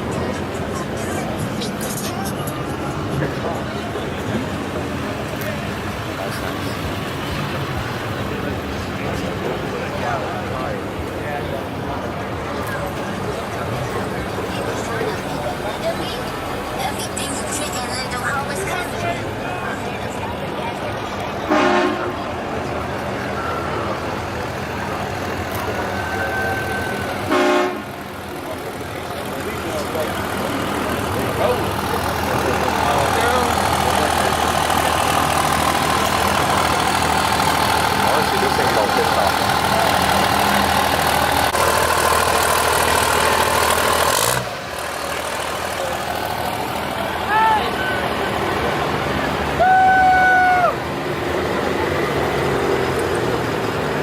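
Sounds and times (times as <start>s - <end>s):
crowd noise: 0.0s - 54.0s
traffic noise: 0.0s - 54.0s
vehicle engine idling: 0.0s - 54.0s
vehicle horn toots: 21.5s - 22.1s, 26.3s - 27.9s.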